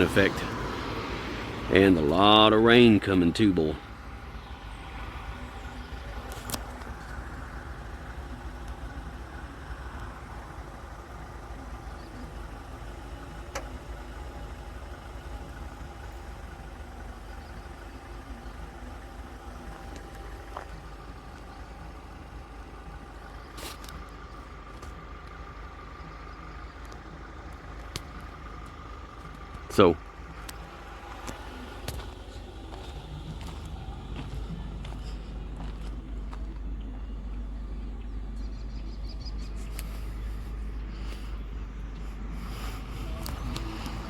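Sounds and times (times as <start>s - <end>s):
car engine running: 0.0s - 44.0s
faint clicks: 26.6s - 29.7s.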